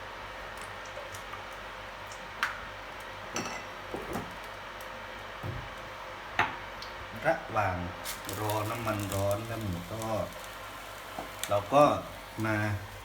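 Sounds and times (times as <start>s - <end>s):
low hiss and hum: 0.0s - 13.0s
kitchenware clinking: 3.4s - 3.7s.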